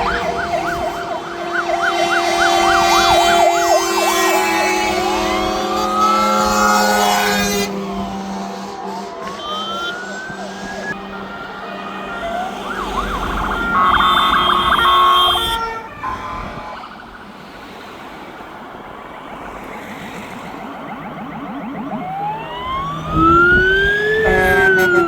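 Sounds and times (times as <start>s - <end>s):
vehicle running noise: 0.0s - 15.5s, 18.4s - 25.0s
loud horn blast: 0.0s - 16.8s, 23.0s - 25.0s
fire engine sirens wailing: 0.0s - 25.0s.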